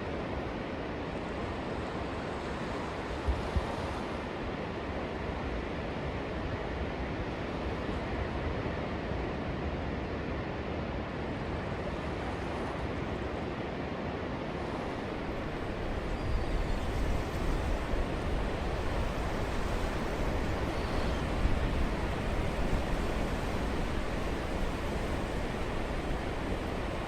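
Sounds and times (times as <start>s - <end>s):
coastal wind: 0.0s - 27.0s
ocean surf rushing: 14.8s - 27.0s
wind buffeting microphone: 14.8s - 27.0s.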